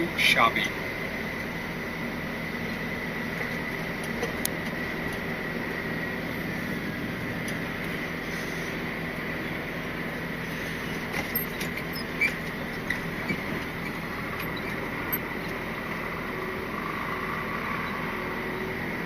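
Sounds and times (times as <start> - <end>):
truck engine and road noise: 0.0 - 19.0
cab clicks and squeaks: 11.1 - 15.6.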